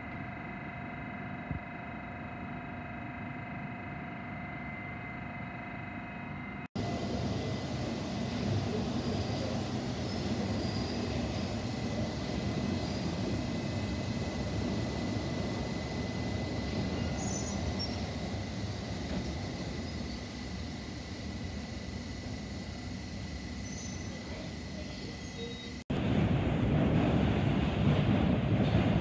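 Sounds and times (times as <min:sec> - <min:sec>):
train wheels rumbling on rail: 0:06.8 - 0:29.0.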